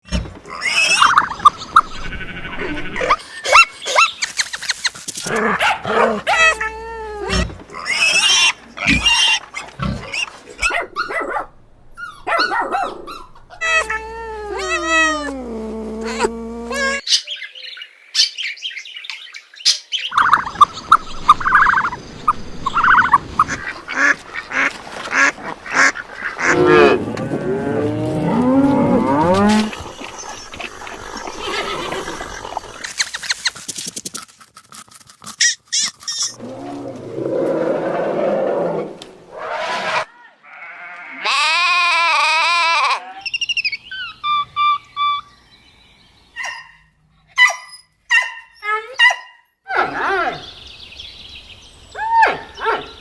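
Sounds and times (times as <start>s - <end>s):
animal and bird calls: 12.0s - 24.6s, 43.2s - 45.7s.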